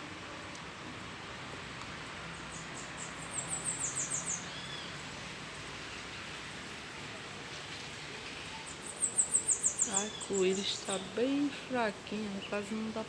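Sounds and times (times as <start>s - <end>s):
steady outdoor hiss: 0.0s - 13.0s
songbird chirping: 1.5s - 5.1s, 7.9s - 13.0s.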